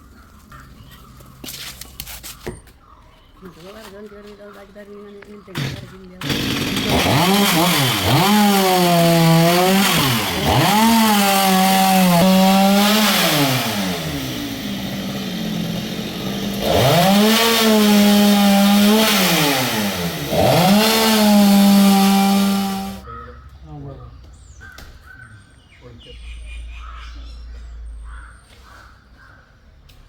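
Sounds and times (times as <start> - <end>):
chainsaw revving: 5.5 - 23.0.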